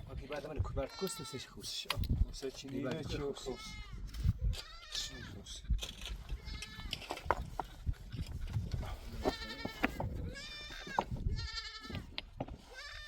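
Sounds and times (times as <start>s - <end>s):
goats bleating: 0.7s - 1.6s, 3.3s - 4.0s, 9.0s - 12.1s, 12.7s - 13.0s.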